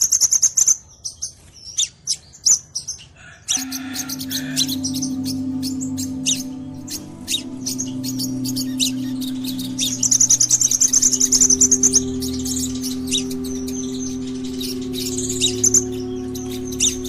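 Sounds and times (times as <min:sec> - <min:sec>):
bird chirping and trilling: 0:03.6 - 0:17.0
steady low hum: 0:03.6 - 0:17.0.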